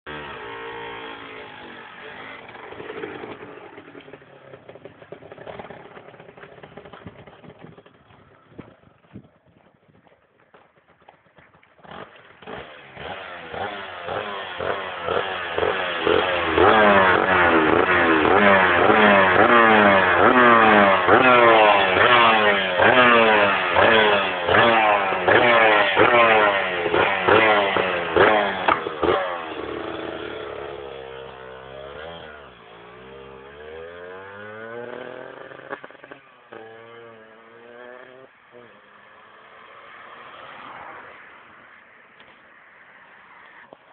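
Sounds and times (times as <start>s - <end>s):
motorcycle engine revving: 0.1s - 43.7s.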